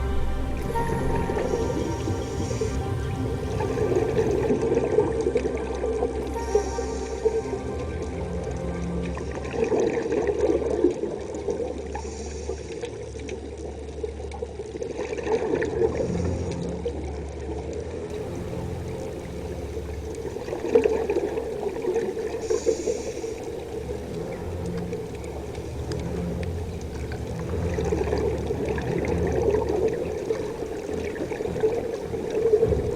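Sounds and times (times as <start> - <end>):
water gurgling and sloshing: 0.0 - 32.9.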